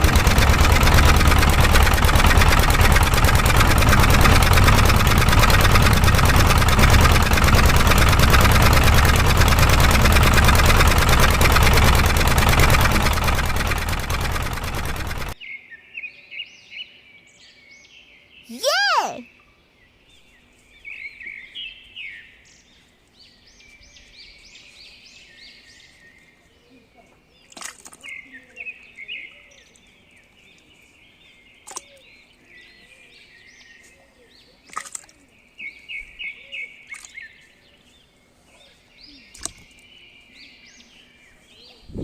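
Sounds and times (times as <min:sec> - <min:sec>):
sharp clicks: 0:00.0 - 0:15.4
small birds chirping and trilling: 0:19.5 - 0:42.0.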